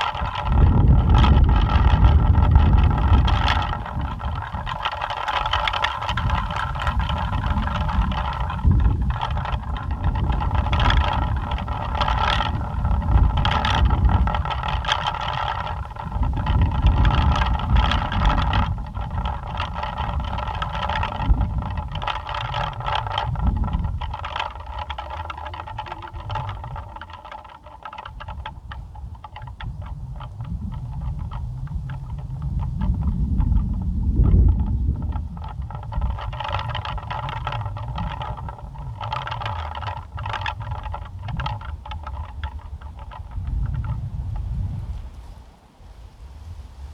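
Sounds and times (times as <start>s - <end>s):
pinwheels whirring and clicking: 0.0s - 44.4s
wind rumble on microphone: 0.0s - 46.9s.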